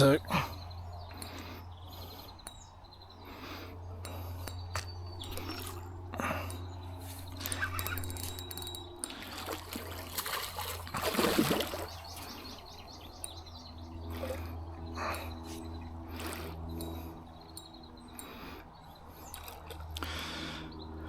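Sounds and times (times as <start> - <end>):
water splashing and trickling: 5.2 - 13.3
fish thrashing at surface: 9.1 - 12.4.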